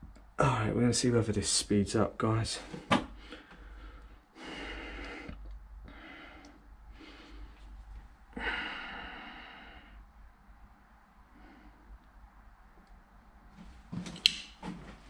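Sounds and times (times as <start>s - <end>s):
person breathing: 3.1s - 10.1s, 11.2s - 12.1s.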